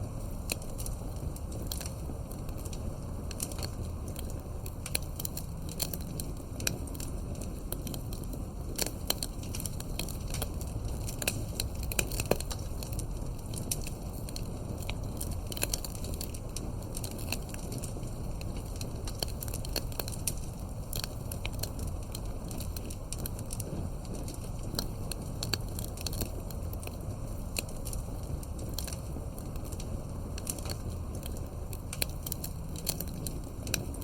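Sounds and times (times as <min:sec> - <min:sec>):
campfire crackling and popping: 0:00.0 - 0:34.0
low rumble of flames: 0:00.0 - 0:34.0.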